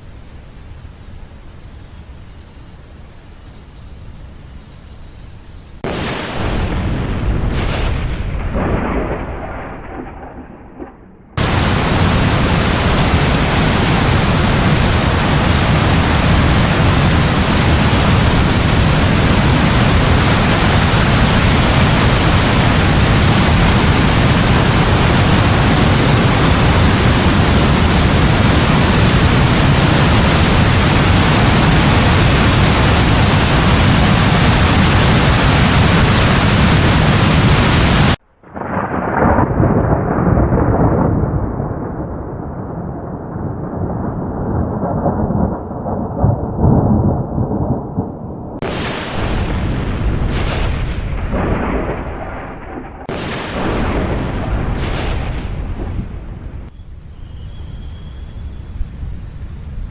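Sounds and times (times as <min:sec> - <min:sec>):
heavy rain hissing: 0:00.0 - 0:09.0, 0:11.4 - 0:38.8, 0:56.6 - 0:59.9
thunder rumbling: 0:00.0 - 0:59.9.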